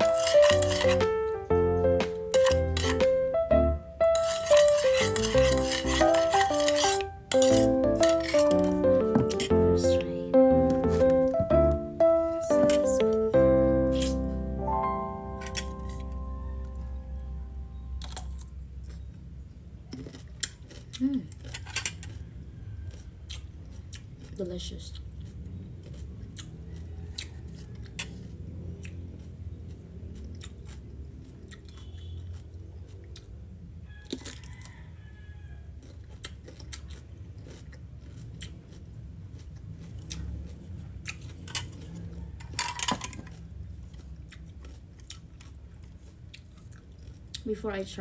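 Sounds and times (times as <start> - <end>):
cucumber being bitten and chewed: 18.0 - 34.8, 35.6 - 42.4, 43.1 - 47.5.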